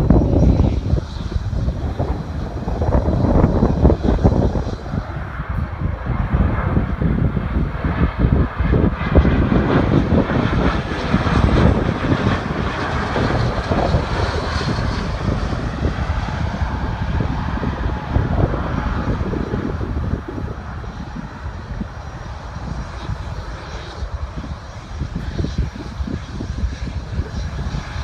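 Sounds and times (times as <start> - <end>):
airliner engine rumble: 0.0 - 28.0.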